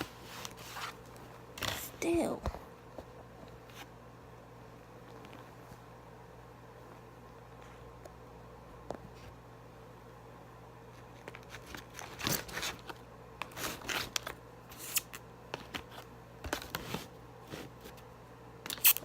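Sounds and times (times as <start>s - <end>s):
paper and packaging crinkling: 11.0s - 17.1s.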